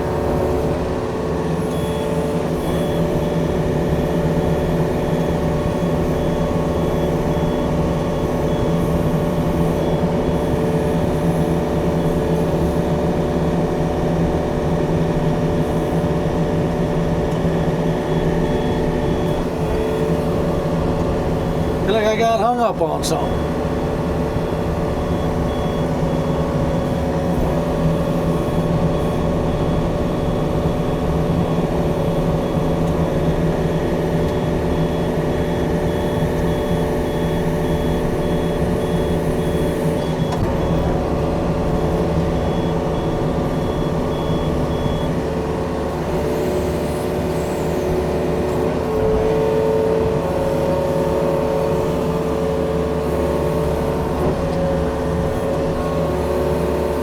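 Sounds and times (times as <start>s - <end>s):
diesel engine running: 0.0s - 57.0s
high-pitched warning beeper: 21.5s - 23.6s.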